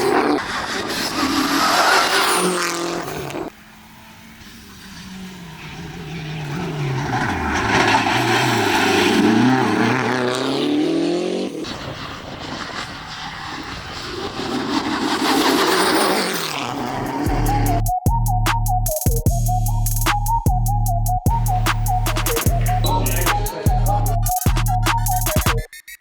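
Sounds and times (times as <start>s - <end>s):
rally car engine accelerating: 0.0s - 11.8s, 12.8s - 17.9s.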